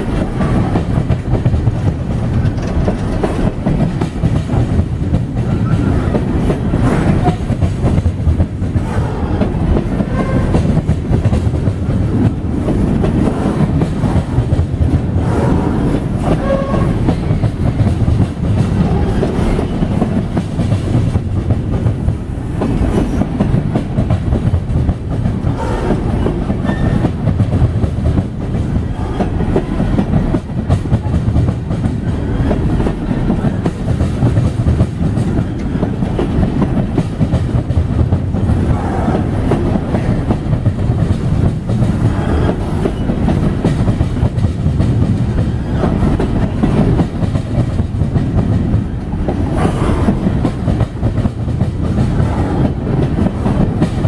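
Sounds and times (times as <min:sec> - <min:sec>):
train wheels rumbling on rail: 0:00.0 - 0:54.0
wheels clacking over rail joints: 0:00.0 - 0:54.0.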